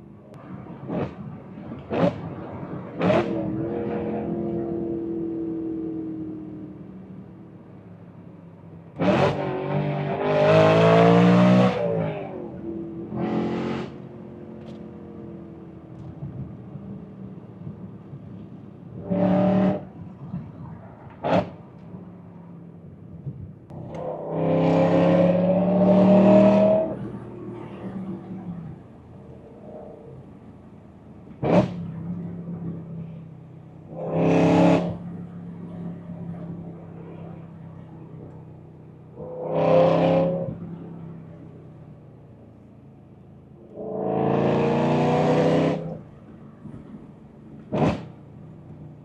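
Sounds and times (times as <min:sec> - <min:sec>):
car engine revving: 0:08.9 - 0:16.2, 0:23.7 - 0:30.4, 0:31.3 - 0:32.9, 0:33.8 - 0:37.0, 0:39.1 - 0:41.1, 0:43.7 - 0:46.1.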